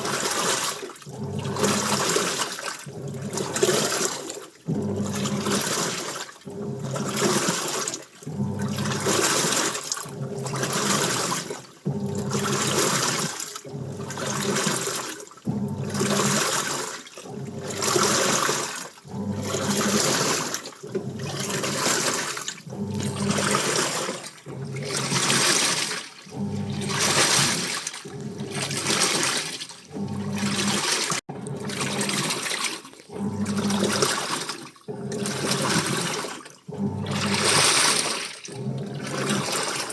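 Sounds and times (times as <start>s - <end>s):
washing machine sloshing: 0.0s - 39.9s
low motor hum: 19.0s - 32.4s.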